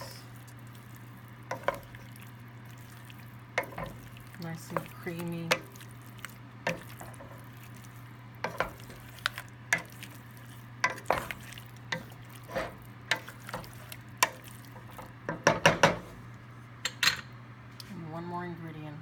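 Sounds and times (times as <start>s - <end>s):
utensil scraping and clinking pan: 1.5s - 2.0s, 8.4s - 10.0s, 10.8s - 16.0s.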